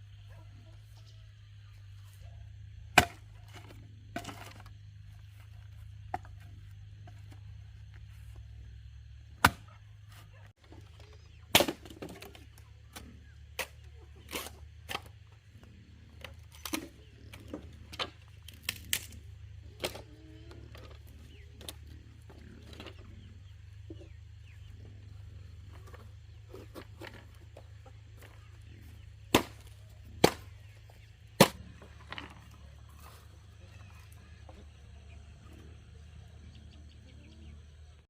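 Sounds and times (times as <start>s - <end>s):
firewood knocking and cracking: 3.0s - 4.7s, 11.5s - 12.6s, 29.3s - 30.6s.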